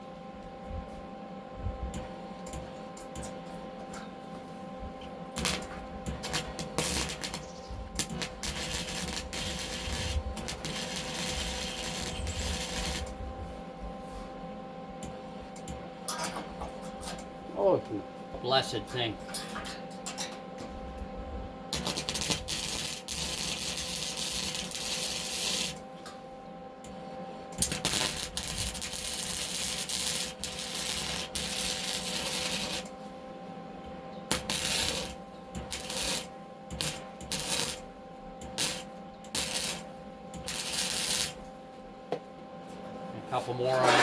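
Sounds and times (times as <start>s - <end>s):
steady hum: 0.0s - 44.0s
welding arc crackling: 5.3s - 13.3s, 21.7s - 25.8s, 27.6s - 33.0s, 34.3s - 41.5s.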